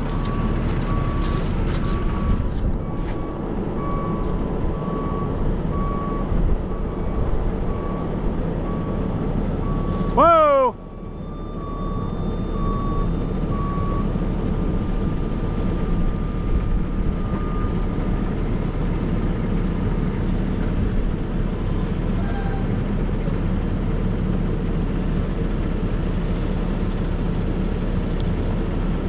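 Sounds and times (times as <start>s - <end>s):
backup alarm beeping: 0.0s - 9.0s
truck engine rumbling: 0.0s - 29.0s.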